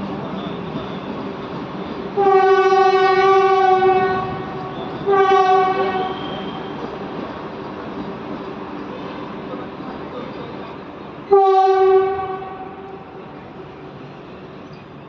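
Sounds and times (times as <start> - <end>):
passing train running noise: 0.0 - 15.0
train horn blasts: 2.2 - 6.8, 11.3 - 13.2.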